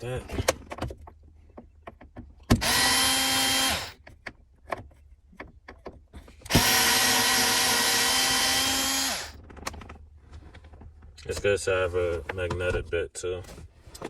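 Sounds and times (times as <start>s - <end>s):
power drill running: 2.6s - 4.0s, 6.5s - 9.4s.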